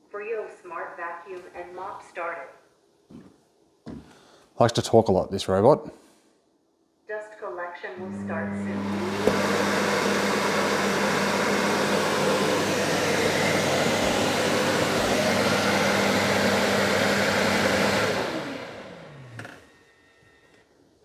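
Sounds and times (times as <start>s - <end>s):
suction motor running: 8.0s - 19.6s
motor spinning down whine: 8.0s - 19.7s.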